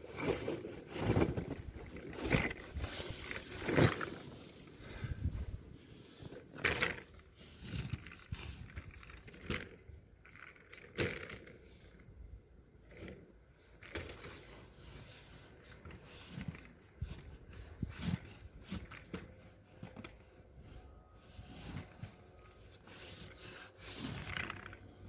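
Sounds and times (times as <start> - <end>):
snow shovel scraping: 0.0 - 5.3, 20.6 - 25.0.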